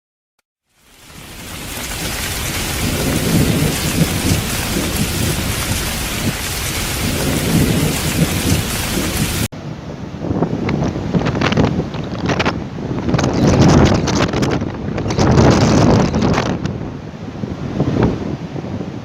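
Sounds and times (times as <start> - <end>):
heavy rain: 0.6 - 9.5
low rolling thunder: 1.0 - 9.5.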